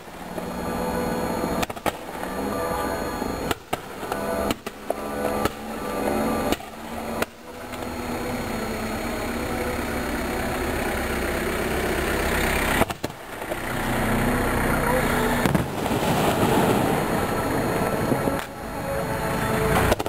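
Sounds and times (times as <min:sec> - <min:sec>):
people's voices: 0:00.0 - 0:20.0
fireworks exploding: 0:15.3 - 0:20.0.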